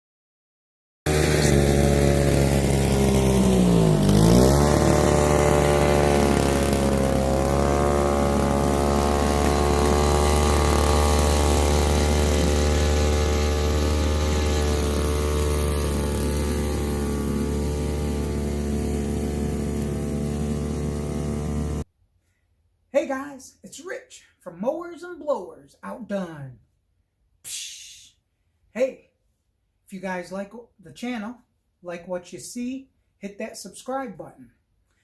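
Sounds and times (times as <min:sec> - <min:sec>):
leaf blower engine running: 0:01.1 - 0:21.8.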